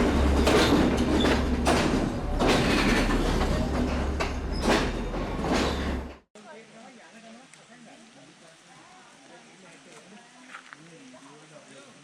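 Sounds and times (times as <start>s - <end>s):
train wheels knocking: 0.0s - 6.2s
train rumbling: 0.0s - 6.3s.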